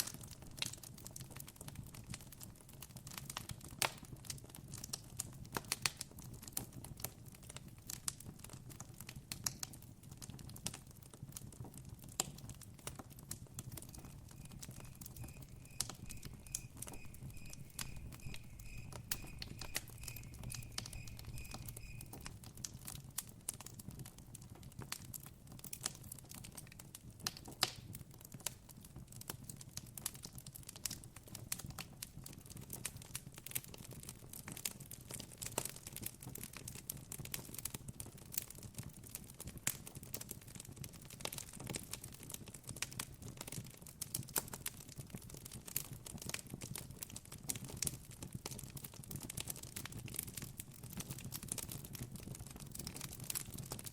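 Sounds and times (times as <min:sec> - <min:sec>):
campfire crackling and popping: 0:00.0 - 0:53.9
cricket chirping: 0:14.0 - 0:22.3
low steady hum: 0:14.0 - 0:22.3.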